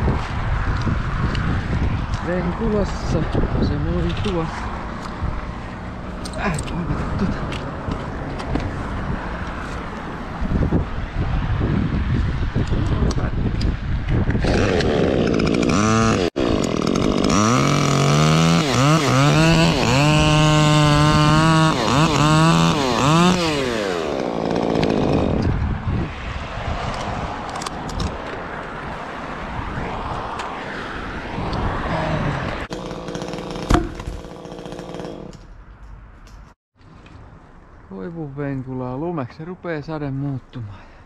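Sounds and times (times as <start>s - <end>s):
chainsaw revving: 14.4s - 25.4s, 32.6s - 35.4s.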